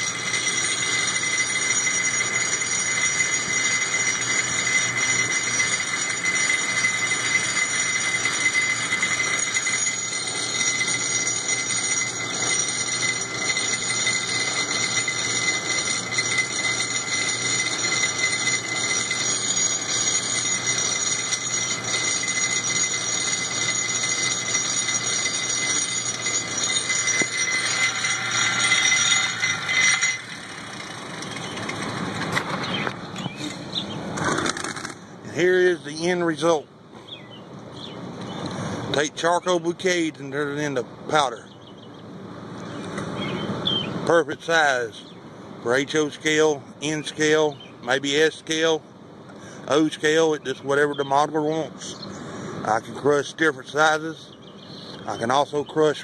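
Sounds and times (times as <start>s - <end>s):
rock crusher grinding: 0.0s - 36.6s
high metallic ringing: 0.0s - 36.7s, 42.6s - 56.0s.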